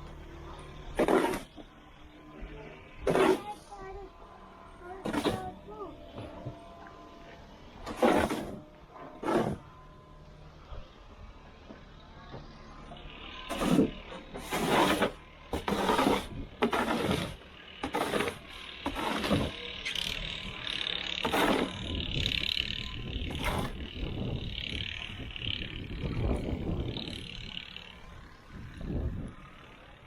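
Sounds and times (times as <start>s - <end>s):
snow shovel scraping snow: 0.8s - 1.7s, 2.4s - 4.1s, 4.8s - 6.5s, 7.8s - 9.7s, 13.5s - 20.2s, 21.2s - 22.4s, 23.2s - 24.0s.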